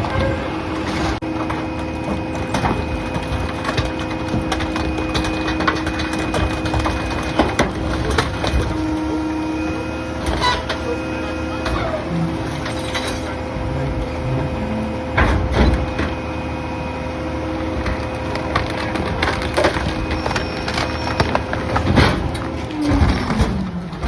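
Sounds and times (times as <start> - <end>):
garbage truck engine and hydraulics: 0.0 - 24.0
wood cracking and splintering: 1.4 - 9.0, 17.6 - 24.0.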